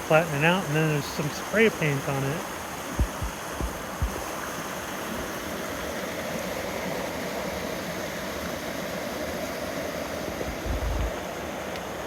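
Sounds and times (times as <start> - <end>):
creek water flowing: 0.0 - 12.0.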